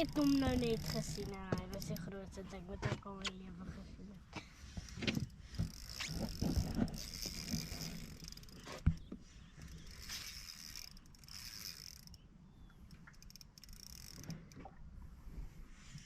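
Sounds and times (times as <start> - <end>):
fishing reel drag buzzing: 0.0 - 2.1, 4.8 - 12.3, 12.9 - 14.6.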